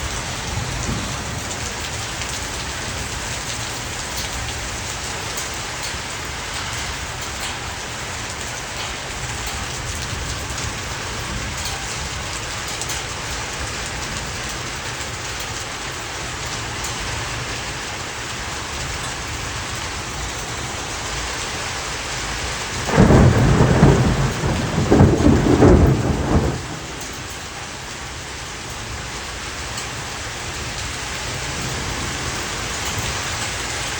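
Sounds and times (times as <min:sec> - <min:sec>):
thunder rumble: 0:00.0 - 0:04.9, 0:21.8 - 0:29.0
heavy rain and hail: 0:00.0 - 0:33.9.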